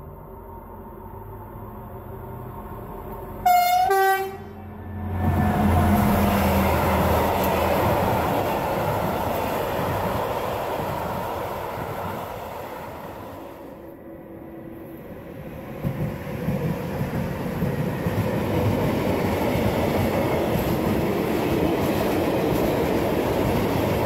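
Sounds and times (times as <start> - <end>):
two-note locomotive horn: 3.4 - 4.8.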